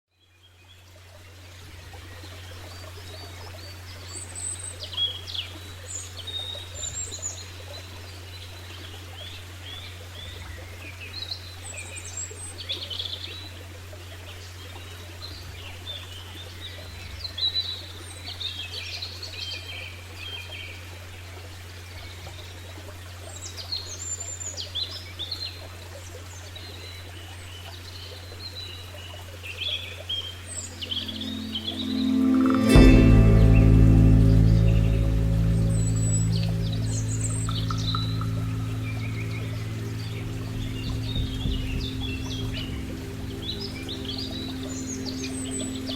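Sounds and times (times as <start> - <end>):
steady low hum: 30.8 - 45.9.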